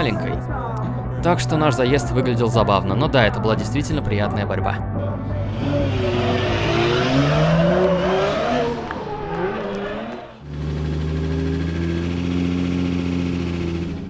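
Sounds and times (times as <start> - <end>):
car engine revving: 5.3 - 14.0.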